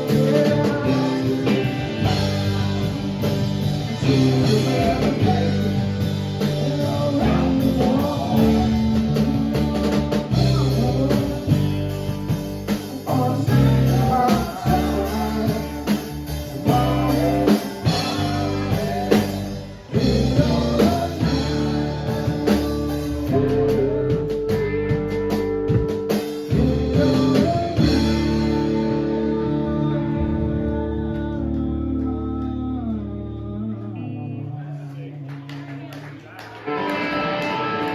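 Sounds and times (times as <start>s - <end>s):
drum kit: 0.0s - 31.6s
bass guitar: 0.0s - 35.8s, 36.4s - 37.9s
lead guitar bending notes: 36.6s - 37.9s.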